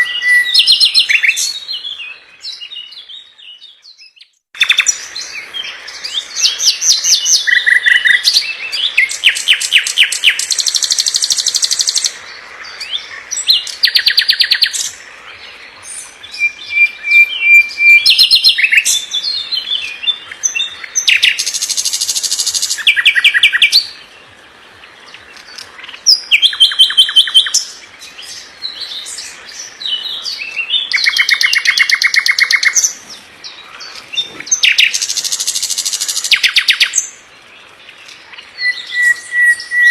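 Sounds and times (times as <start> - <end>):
bird whistle: 0.0 - 1.4, 16.3 - 19.4, 38.6 - 39.9
songbird singing trills: 0.0 - 39.9.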